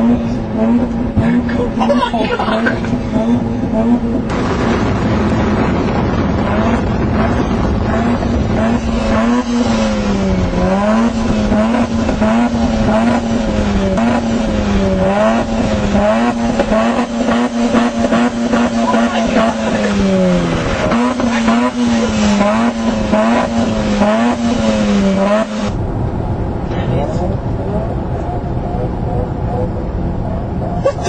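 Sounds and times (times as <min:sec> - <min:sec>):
rotary engine revving: 0:00.0 - 0:25.8
exhaust crackling pops: 0:04.3 - 0:28.6.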